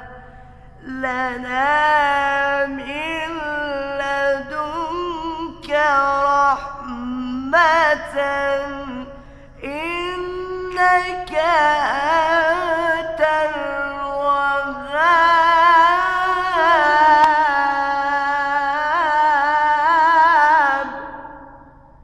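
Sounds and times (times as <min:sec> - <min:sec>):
person chanting recitation: 0:00.0 - 0:21.7
breath: 0:00.2 - 0:00.8, 0:09.1 - 0:09.6.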